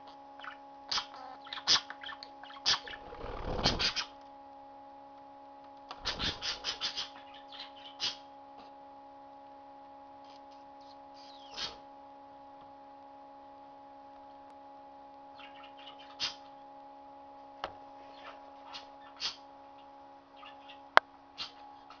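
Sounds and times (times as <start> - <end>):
steady electrical hum: 0.0 - 22.0
budgerigars chirping: 0.4 - 4.1, 6.0 - 8.2, 11.2 - 11.8, 15.4 - 16.4, 18.1 - 19.4, 20.4 - 22.0.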